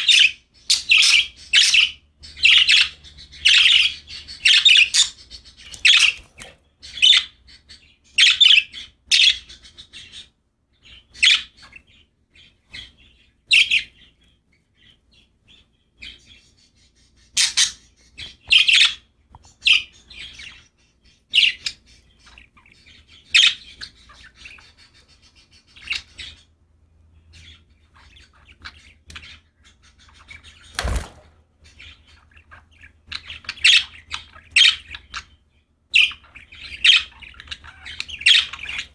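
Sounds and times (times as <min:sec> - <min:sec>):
budgerigars chirping: 0:00.0 - 0:38.9.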